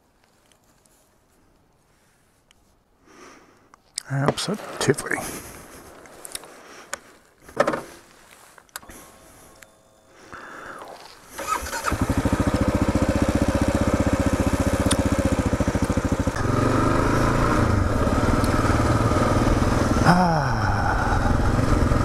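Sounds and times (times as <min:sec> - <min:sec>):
motorcycle engine starting and idling: 0:11.0 - 0:22.0.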